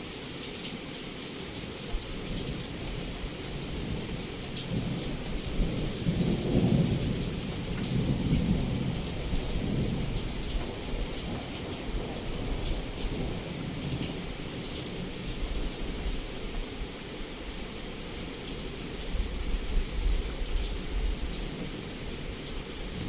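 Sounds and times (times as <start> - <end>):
heavy rain: 0.0 - 23.0
low roll of thunder: 4.7 - 14.3.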